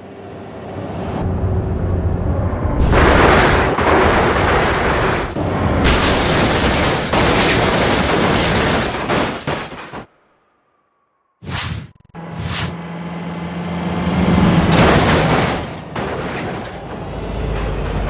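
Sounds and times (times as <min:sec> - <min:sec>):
loud rough rumbling noise: 0:00.0 - 0:08.7.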